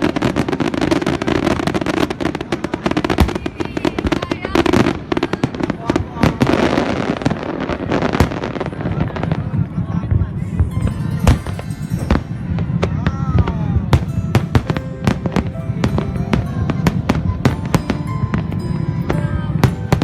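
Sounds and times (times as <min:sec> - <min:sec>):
firecrackers banging: 0:00.0 - 0:20.0
voices: 0:00.0 - 0:20.0
music: 0:10.3 - 0:20.0.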